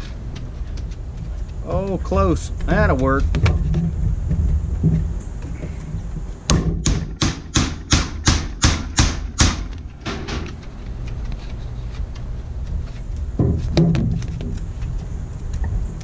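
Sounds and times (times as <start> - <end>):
steady low hum: 0.0 - 16.0
metal punch strikes: 6.5 - 10.5.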